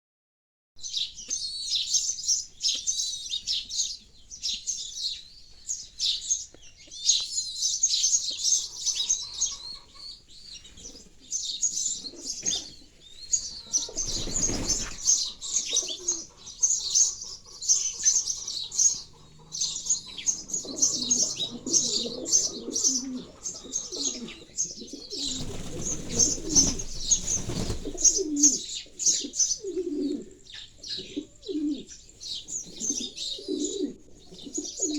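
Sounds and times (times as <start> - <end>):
sparrows chirping: 0.8 - 34.9
pigeons cooing: 8.2 - 34.9
wings flapping: 13.4 - 16.2, 24.9 - 28.6.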